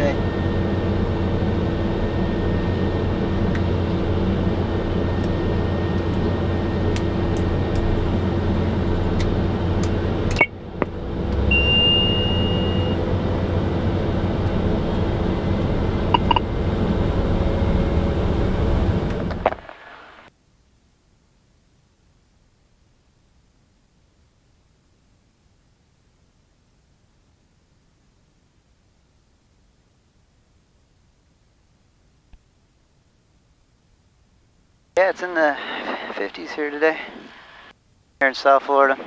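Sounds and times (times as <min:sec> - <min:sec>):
machine engine humming: 0:00.0 - 0:19.5
short high beep: 0:11.5 - 0:13.0.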